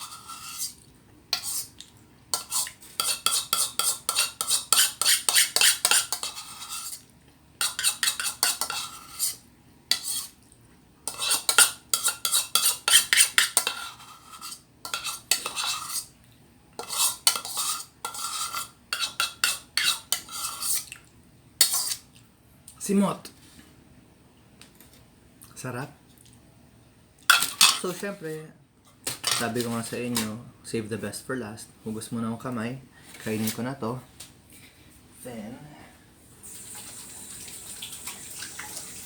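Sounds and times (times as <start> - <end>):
metal spoon scraping a container: 0.0 - 1.7, 2.3 - 7.0, 7.6 - 10.4, 11.1 - 16.1, 16.8 - 20.9, 21.6 - 22.1.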